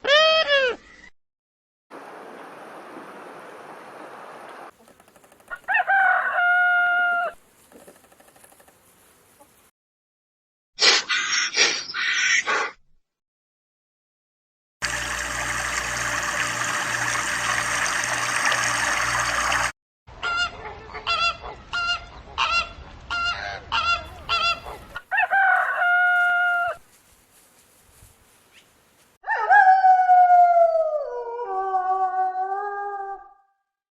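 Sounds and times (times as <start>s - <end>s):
geese honking: 20.2s - 26.7s.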